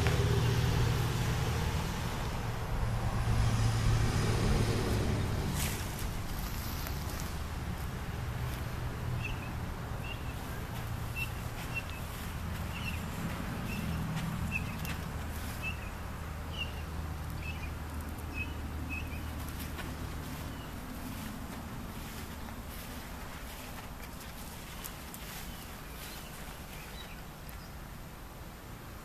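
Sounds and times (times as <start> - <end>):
low steady rumble: 0.0 - 29.0
bird chirping: 9.2 - 21.3, 21.9 - 27.9.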